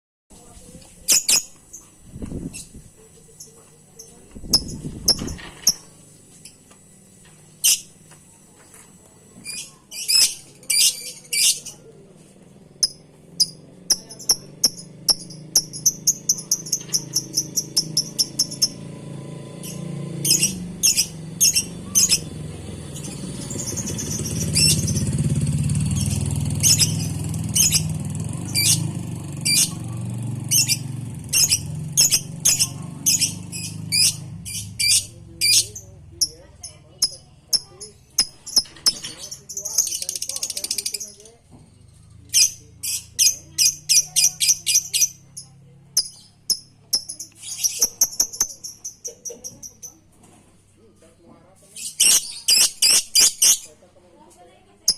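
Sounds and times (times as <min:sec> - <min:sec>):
lovebird chirping: 0:01.1 - 0:01.9, 0:09.4 - 0:11.8, 0:12.8 - 0:18.8, 0:19.6 - 0:25.2, 0:26.0 - 0:29.8, 0:30.5 - 0:41.3, 0:42.0 - 0:50.0, 0:51.8 - 0:53.7.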